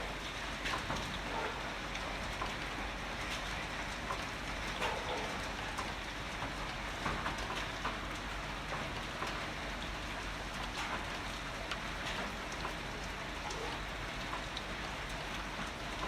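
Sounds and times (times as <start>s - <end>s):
raindrops ticking on surfaces: 0.0s - 16.0s.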